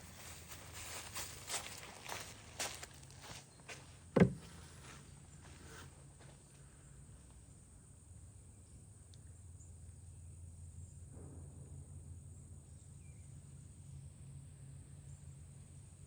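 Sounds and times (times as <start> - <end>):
sharp thump: 4.2 - 4.5.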